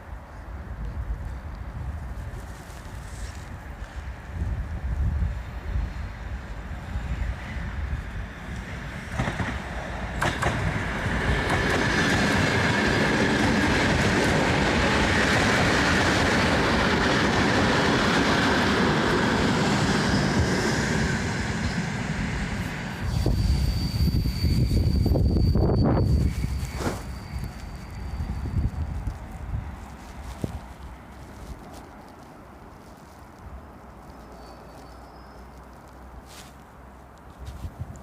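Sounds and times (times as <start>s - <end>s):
train wheels clattering over rails: 8.6s - 20.8s.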